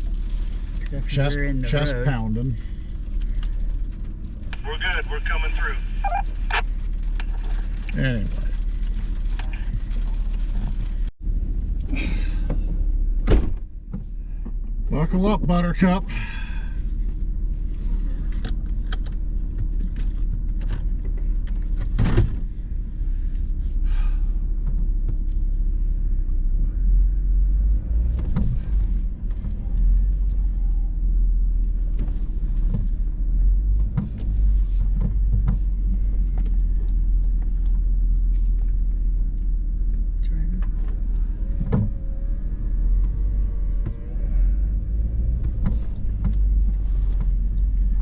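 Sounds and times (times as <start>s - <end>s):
engine running low inside cab: 0.0s - 48.0s
knocks and clicks from vehicle body: 12.4s - 14.8s, 18.2s - 22.6s, 24.5s - 25.4s, 28.1s - 29.6s, 31.7s - 37.9s, 40.6s - 42.2s, 45.1s - 48.0s.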